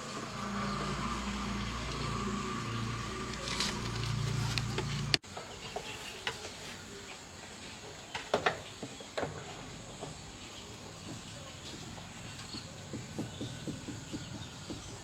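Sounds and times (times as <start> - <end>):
machine hum: 0.0 - 5.2.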